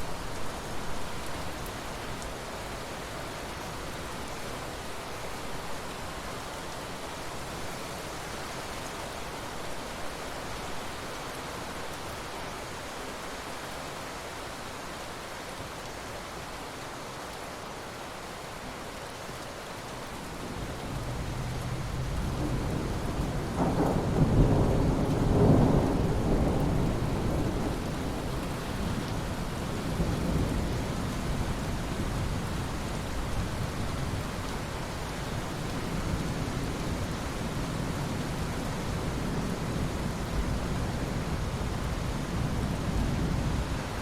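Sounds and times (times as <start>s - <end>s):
steady rain falling: 0.0s - 44.0s
thunder rumbling: 21.1s - 30.6s.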